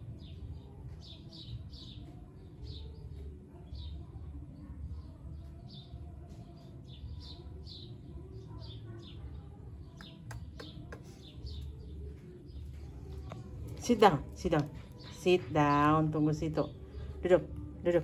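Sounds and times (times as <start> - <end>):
low steady hum: 0.0 - 18.0
small bird chirping: 5.0 - 13.9.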